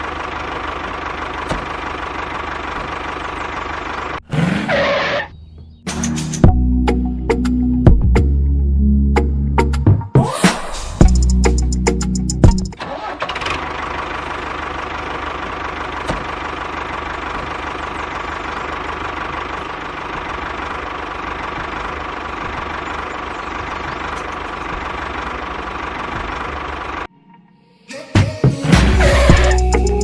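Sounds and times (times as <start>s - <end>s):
engine knocking rhythmically: 0.0s - 4.2s, 11.0s - 27.1s, 29.3s - 30.0s.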